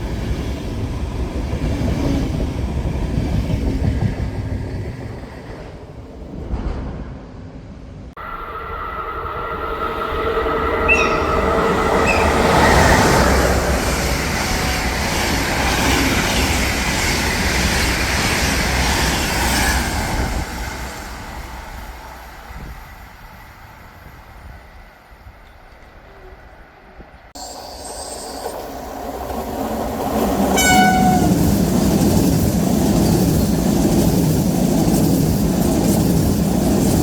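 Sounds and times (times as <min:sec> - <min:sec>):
train wheels rumbling on rails: 0:00.0 - 0:37.0
train horn chord: 0:08.2 - 0:13.7, 0:30.6 - 0:31.4.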